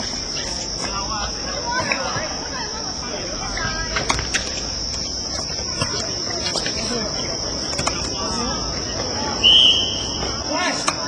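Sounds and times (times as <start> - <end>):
distant voices: 0.0 - 11.0
referee's whistle blast: 9.4 - 10.2.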